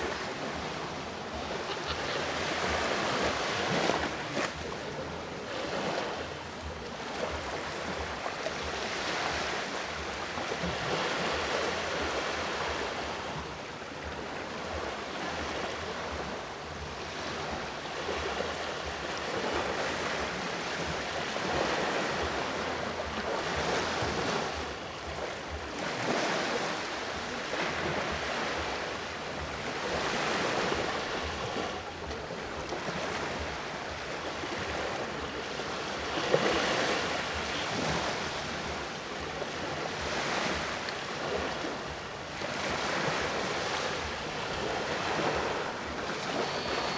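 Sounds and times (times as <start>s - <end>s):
ocean waves washing ashore: 0.0s - 46.9s.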